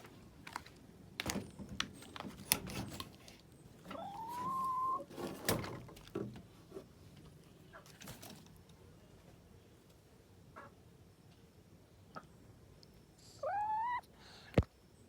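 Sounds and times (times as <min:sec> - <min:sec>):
hen calling: 0:03.9 - 0:05.1, 0:13.4 - 0:14.1.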